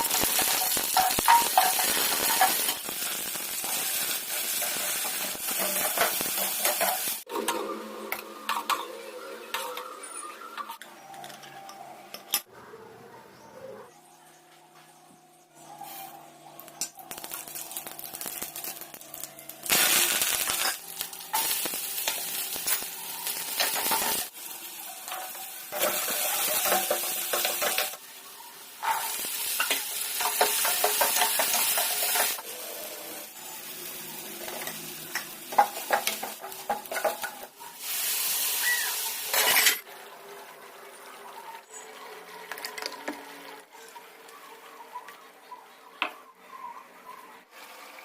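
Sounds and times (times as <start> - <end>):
food sizzling in hot oil: 0.0 - 7.3, 17.1 - 39.9
spoon stirring and scraping pan: 0.5 - 2.9, 4.0 - 7.2, 25.0 - 28.0, 28.8 - 32.4, 34.5 - 37.5.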